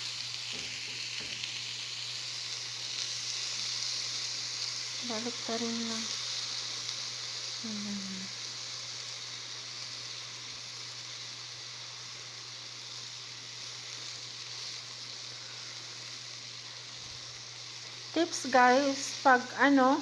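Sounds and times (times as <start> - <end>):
meat sizzling in a pan: 0.0 - 20.0.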